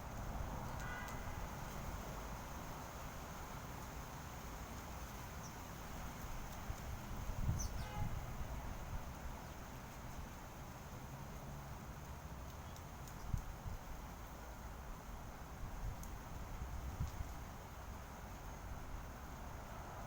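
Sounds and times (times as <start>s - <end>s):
faint bird chirps: 7.5s - 8.1s.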